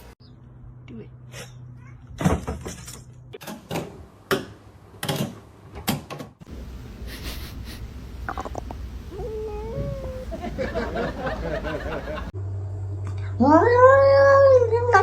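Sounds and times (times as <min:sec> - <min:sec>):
low steady hum: 0:06.5 - 0:15.0.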